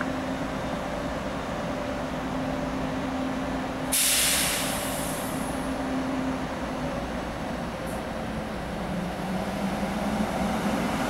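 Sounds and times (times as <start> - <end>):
train humming: 0.0 - 11.0
hiss of released air: 3.9 - 5.6.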